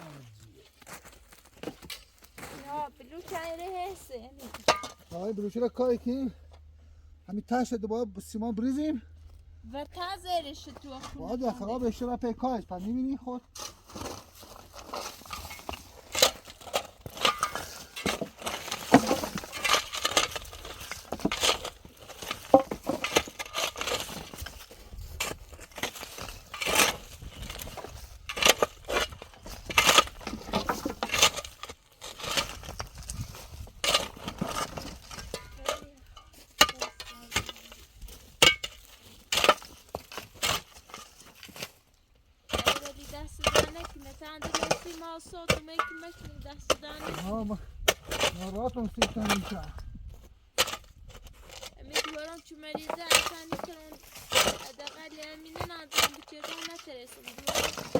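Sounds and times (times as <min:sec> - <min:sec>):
tools clinking and knocking: 0:04.5 - 0:05.1, 0:15.2 - 0:33.0, 0:33.6 - 0:41.7, 0:42.5 - 0:47.2.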